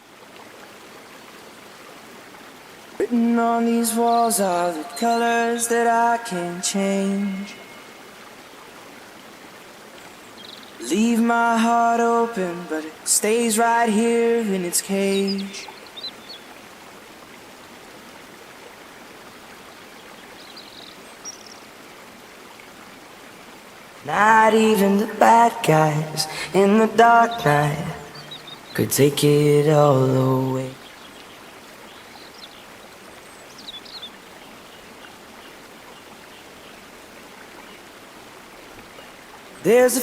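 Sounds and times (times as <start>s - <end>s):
river water flowing: 0.0s - 40.0s
bird chirps: 27.2s - 28.8s.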